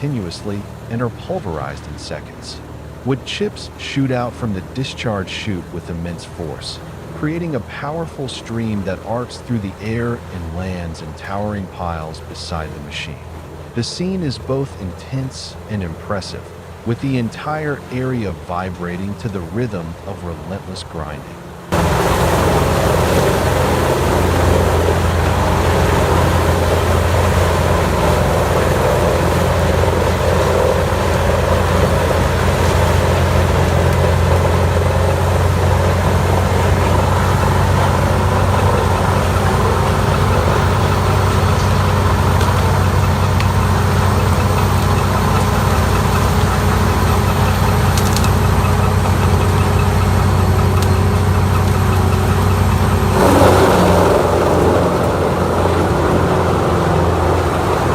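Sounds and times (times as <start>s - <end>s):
wood chipper engine running: 21.3s - 57.9s.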